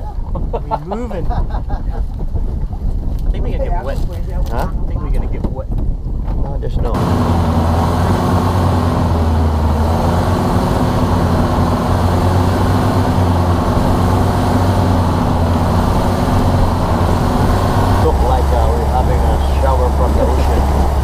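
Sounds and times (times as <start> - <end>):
motorboat engine droning: 7.0 - 21.0.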